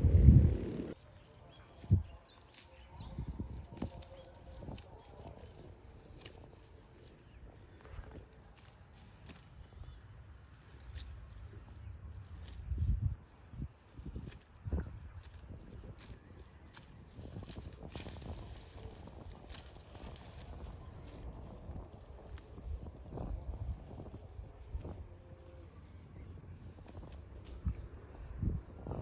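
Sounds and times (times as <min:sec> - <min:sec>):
loud low rumble: 0:00.0 - 0:01.0
low thuds: 0:00.0 - 0:01.0
high insect drone: 0:00.0 - 0:29.0.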